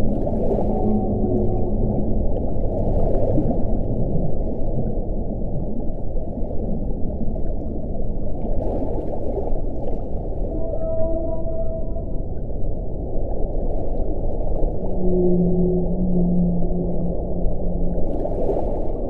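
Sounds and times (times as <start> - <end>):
wind blowing: 0.0 - 6.1, 10.1 - 19.0
faint howling wind tones: 0.0 - 19.0.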